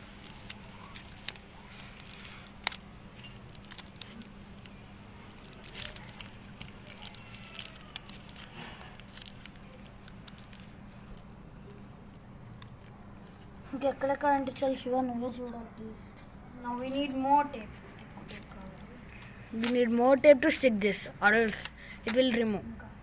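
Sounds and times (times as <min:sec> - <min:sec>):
adhesive tape pulled and torn: 0:00.1 - 0:11.4, 0:19.1 - 0:20.6.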